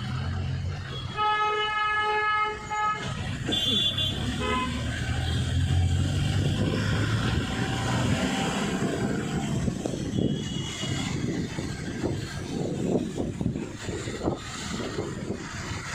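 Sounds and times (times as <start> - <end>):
car horn toot: 1.0 - 4.8
vehicle engine passing: 3.1 - 10.1.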